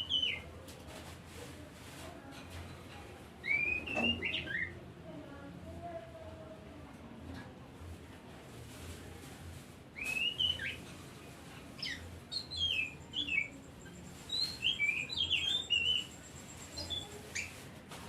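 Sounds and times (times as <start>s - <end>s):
bird singing whistled notes: 3.4s - 4.7s, 10.0s - 10.8s, 11.8s - 13.5s, 14.3s - 17.5s.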